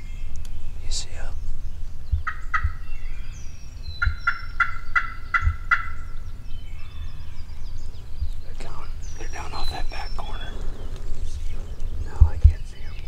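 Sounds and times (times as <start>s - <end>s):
turkey calling: 2.1s - 7.4s, 8.5s - 13.0s.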